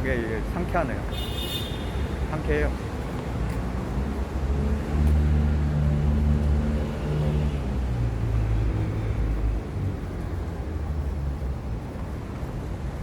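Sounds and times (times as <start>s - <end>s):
traffic noise: 0.0s - 13.0s
vehicle engine droning: 2.5s - 11.8s.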